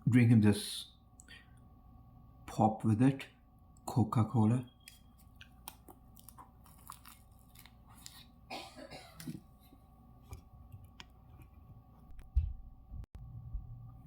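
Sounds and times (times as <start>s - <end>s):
person chewing sandwich: 5.2s - 8.4s.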